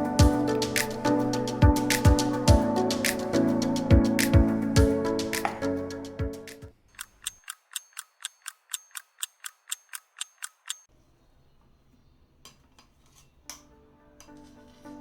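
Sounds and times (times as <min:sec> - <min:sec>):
rapid even ticking: 0:06.8 - 0:10.9.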